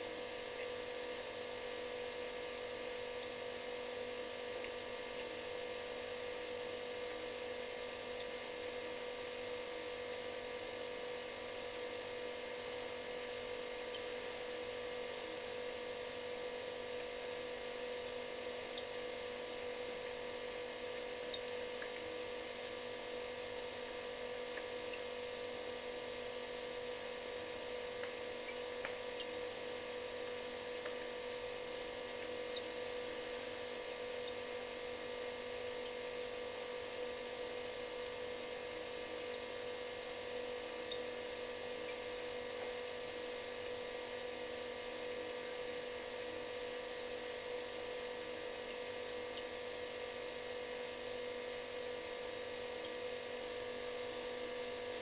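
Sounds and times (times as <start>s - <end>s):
refrigerator humming: 0.0s - 55.0s
faint ticks: 0.1s - 5.5s, 6.4s - 7.2s, 18.0s - 23.8s, 24.5s - 25.1s, 27.2s - 33.5s, 34.1s - 34.7s, 40.8s - 41.2s, 41.8s - 44.4s.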